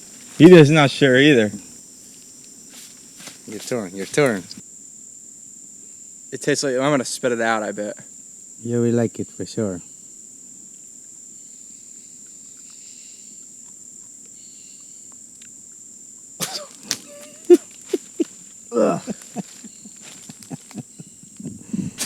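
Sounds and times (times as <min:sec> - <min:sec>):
high-pitched insect drone: 0:00.0 - 0:13.6, 0:14.2 - 0:22.0
brief vocal sounds: 0:16.4 - 0:19.4.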